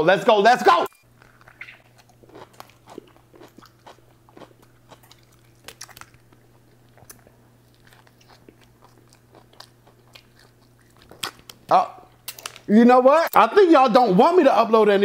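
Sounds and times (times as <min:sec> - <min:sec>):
steady low hum: 0:00.0 - 0:15.0
chewing sandwich crunches: 0:01.1 - 0:12.6.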